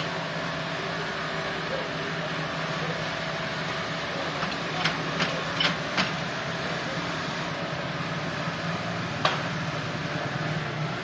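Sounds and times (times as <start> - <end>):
sawmill machinery humming: 0.0 - 11.0.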